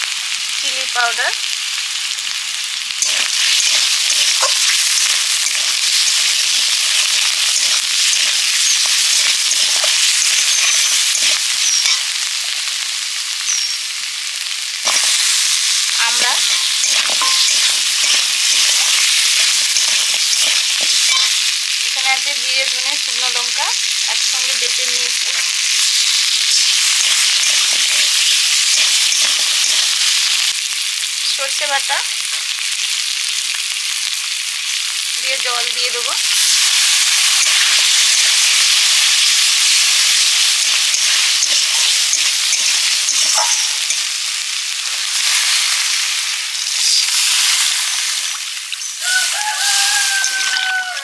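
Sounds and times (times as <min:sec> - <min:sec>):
vegetables sizzling in oil: 0:00.0 - 0:51.0
spatula scraping pan: 0:03.0 - 0:12.0, 0:16.0 - 0:21.5, 0:25.3 - 0:30.4.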